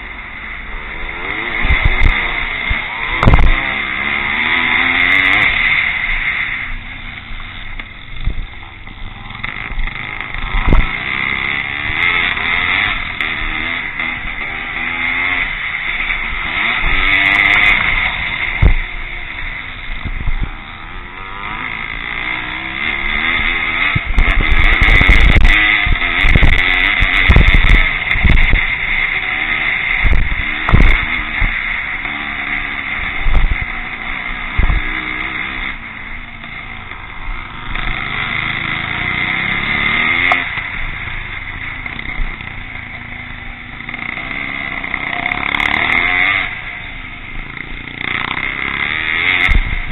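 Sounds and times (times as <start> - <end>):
motorcycle engines revving: 0.0 - 49.9
low thumps: 1.6 - 3.6, 7.4 - 11.2, 30.0 - 31.5, 34.4 - 35.0.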